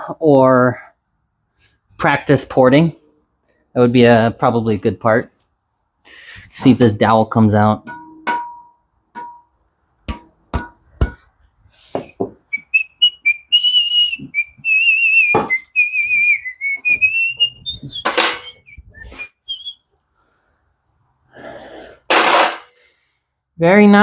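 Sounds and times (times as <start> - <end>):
person whistling a tune: 12.5 - 19.8.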